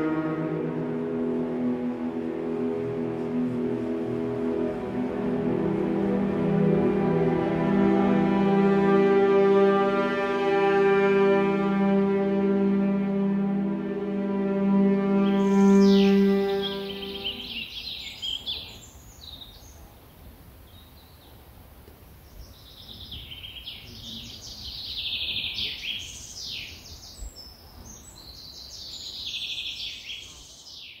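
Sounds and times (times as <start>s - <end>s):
faint low rumble: 0.0s - 9.1s
held musical chord: 0.0s - 17.8s
small birds chirping and trilling: 15.2s - 21.4s, 22.2s - 31.0s.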